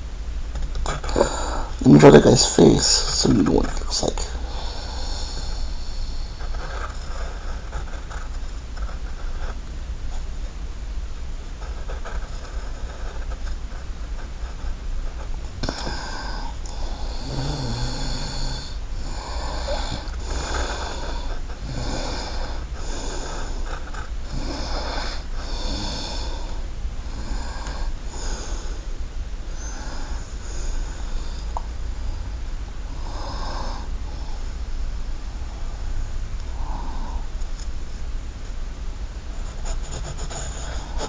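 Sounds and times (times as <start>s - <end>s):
steady low hum: 0.0s - 41.0s
pencil strokes scratching on paper: 39.4s - 41.0s.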